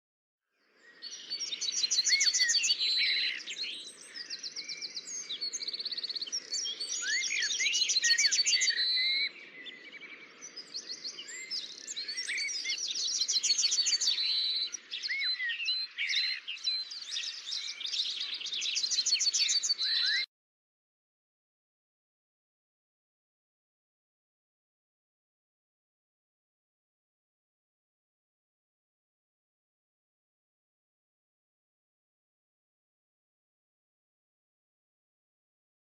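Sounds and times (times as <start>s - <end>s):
birds singing and chirping: 0.8s - 20.3s.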